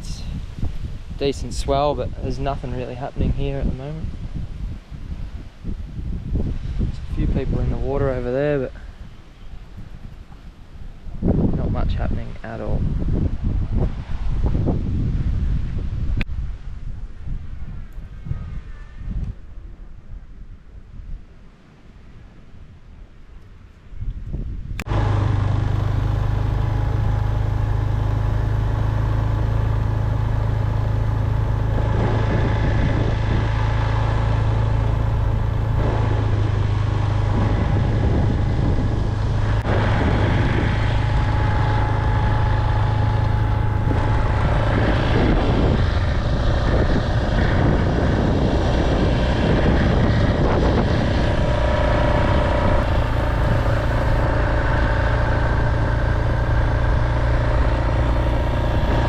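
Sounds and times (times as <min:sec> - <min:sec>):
road noise: 0:00.0 - 0:20.0, 0:23.1 - 0:59.0
vehicle engine running: 0:24.8 - 0:59.0.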